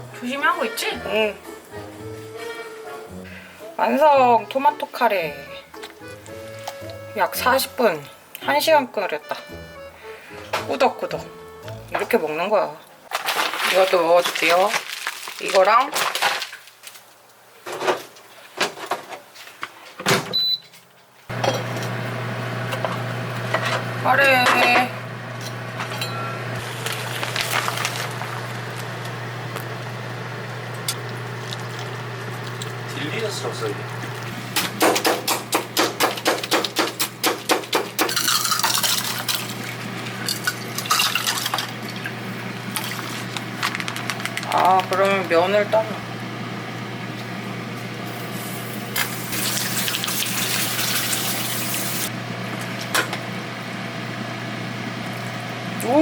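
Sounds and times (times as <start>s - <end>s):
microwave oven humming: 21.3s - 35.2s, 38.1s - 56.0s
wet stirring noise: 26.6s - 45.4s, 49.0s - 52.1s
dishes and utensils clattering: 36.2s - 39.6s, 40.2s - 41.7s.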